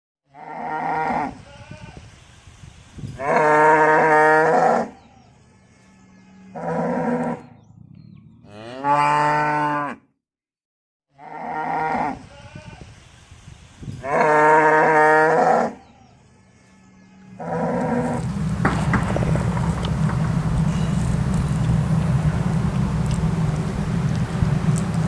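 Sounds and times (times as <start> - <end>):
cow mooing: 0.3 - 1.7, 3.2 - 5.0, 6.4 - 7.6, 8.3 - 10.1, 11.1 - 12.3, 14.0 - 16.0, 17.2 - 21.8.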